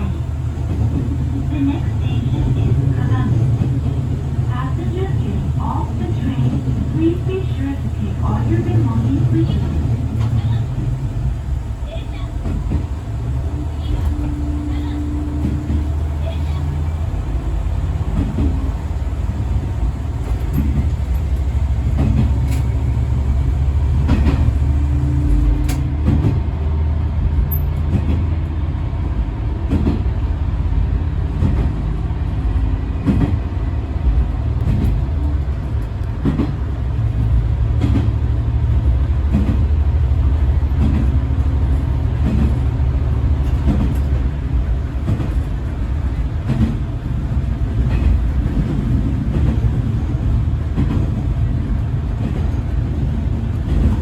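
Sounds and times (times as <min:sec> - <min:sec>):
wheels clicking over rail joints: 0:00.6 - 0:26.4.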